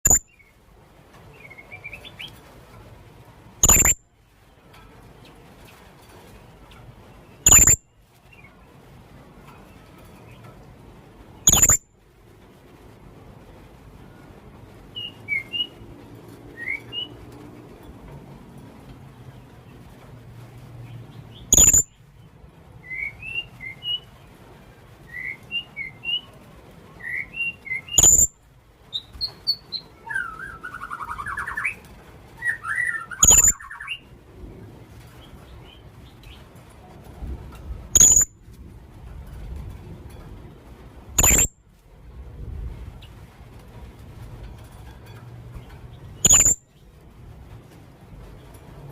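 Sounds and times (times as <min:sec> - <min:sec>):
parrot twittering chirps: 0:00.0 - 0:00.3, 0:03.6 - 0:04.0, 0:07.5 - 0:07.8, 0:11.5 - 0:11.8, 0:21.5 - 0:22.0, 0:27.0 - 0:28.3, 0:32.5 - 0:34.0, 0:38.0 - 0:38.3, 0:41.2 - 0:41.5, 0:46.2 - 0:46.6.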